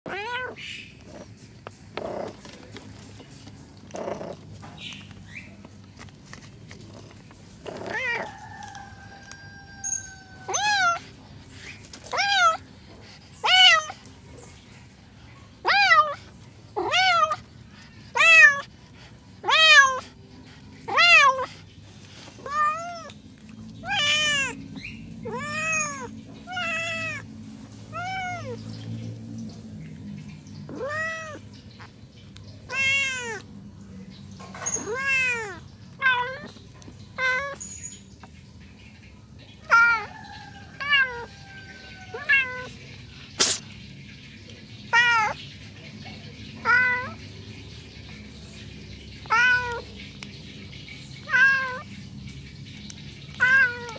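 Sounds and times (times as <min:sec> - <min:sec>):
cat meowing: 0:00.0 - 0:01.2, 0:07.6 - 0:11.2, 0:12.0 - 0:12.7, 0:13.4 - 0:14.0, 0:15.6 - 0:16.2, 0:16.8 - 0:17.4, 0:18.1 - 0:18.7, 0:19.4 - 0:20.1, 0:20.8 - 0:21.5, 0:22.4 - 0:23.2, 0:23.8 - 0:27.3, 0:27.9 - 0:28.6, 0:30.7 - 0:31.4, 0:32.6 - 0:33.5, 0:34.6 - 0:36.6, 0:39.5 - 0:42.8, 0:44.9 - 0:45.4, 0:46.6 - 0:47.2, 0:49.2 - 0:49.9, 0:51.2 - 0:51.9, 0:53.3 - 0:53.9.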